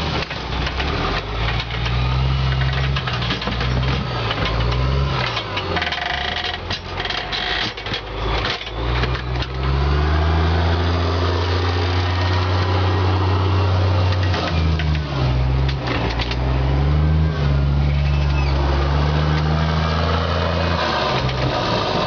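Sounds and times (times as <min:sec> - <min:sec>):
knocks and rattles: 0:00.0 - 0:09.7, 0:14.1 - 0:16.6
vehicle engine running: 0:00.0 - 0:22.0.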